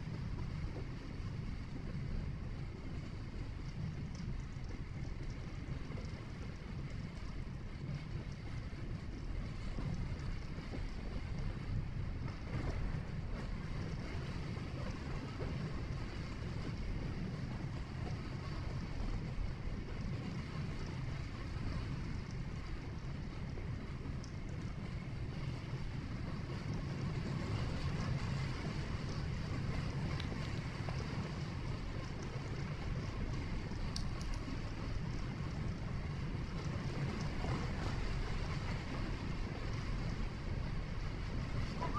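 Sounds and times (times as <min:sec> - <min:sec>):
faint ticks: 0:00.2 - 0:11.4, 0:20.0 - 0:25.6, 0:27.6 - 0:38.0.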